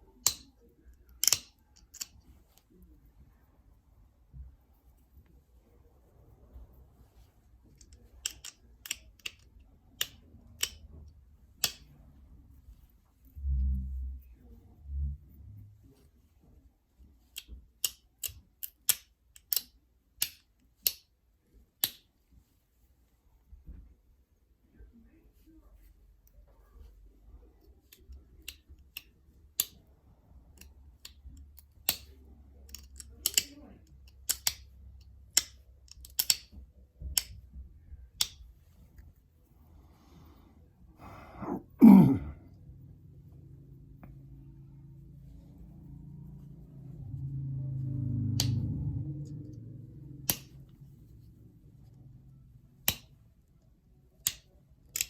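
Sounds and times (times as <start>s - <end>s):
person exhaling: 39.8s - 42.5s.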